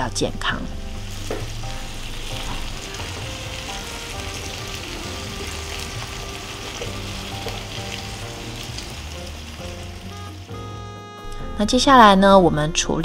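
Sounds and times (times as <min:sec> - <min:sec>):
background music: 0:00.0 - 0:13.0
fish sizzling in hot oil: 0:00.6 - 0:11.0.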